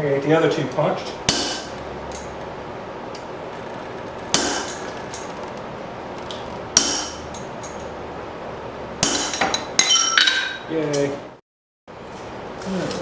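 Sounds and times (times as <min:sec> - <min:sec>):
hammer striking steel on anvil: 0:01.3 - 0:02.3, 0:04.3 - 0:05.2, 0:06.8 - 0:07.9, 0:09.0 - 0:10.6.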